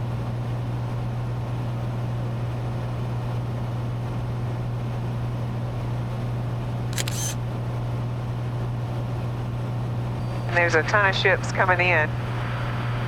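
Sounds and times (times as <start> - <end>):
sharp click: 7.0 - 7.4.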